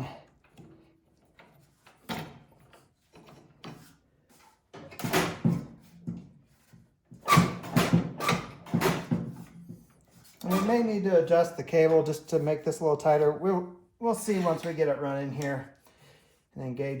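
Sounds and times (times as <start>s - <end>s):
clunks and scrapes of machine parts: 0.4s - 10.9s.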